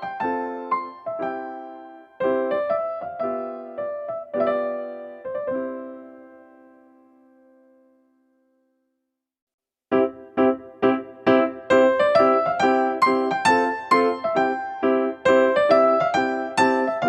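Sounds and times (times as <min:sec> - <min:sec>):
piano music: 0:00.0 - 0:08.3, 0:09.9 - 0:17.0.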